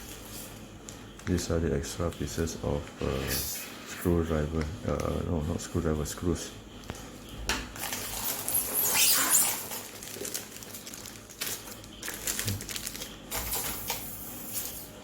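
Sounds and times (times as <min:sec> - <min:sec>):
packaging rustling: 0:07.8 - 0:14.0.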